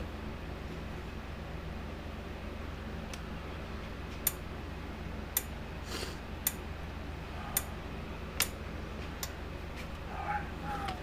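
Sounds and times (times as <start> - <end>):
low electrical hum: 0.0 - 11.0
electric fence charger ticking: 5.3 - 5.6.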